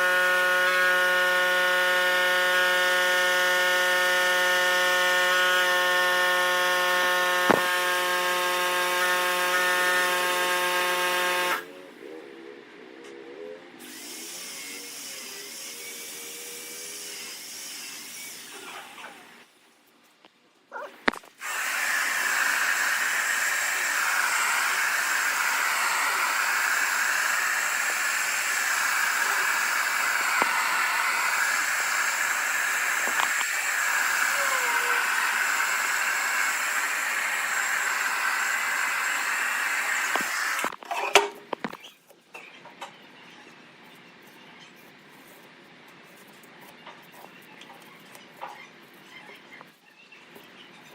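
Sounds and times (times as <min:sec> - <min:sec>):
workshop tool hissing: 0:21.2 - 0:40.7.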